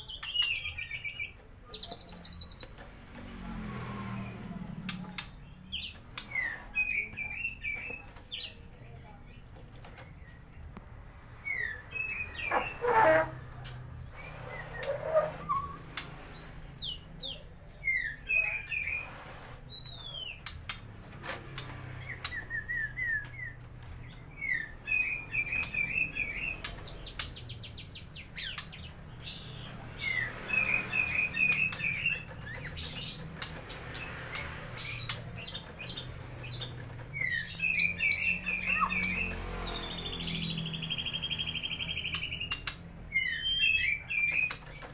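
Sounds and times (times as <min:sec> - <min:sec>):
bird singing whistles and trills: 0:11.3 - 0:13.3, 0:14.0 - 0:20.8, 0:21.6 - 0:44.9.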